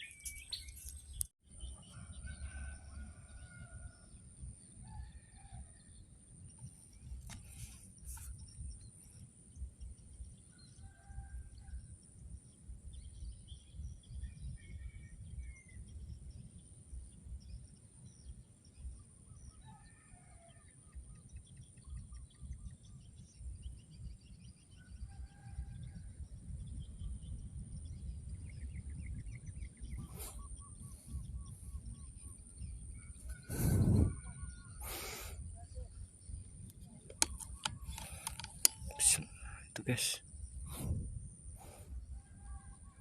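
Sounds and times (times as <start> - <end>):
birds chirping: 0.0 - 3.7, 26.7 - 43.0
sharp click: 37.1 - 39.2.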